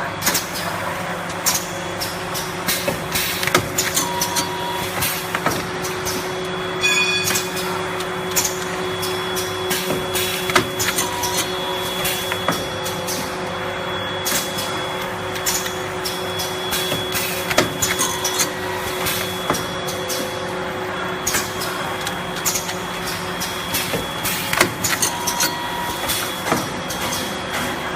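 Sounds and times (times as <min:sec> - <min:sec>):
packing machine humming: 0:00.0 - 0:27.9.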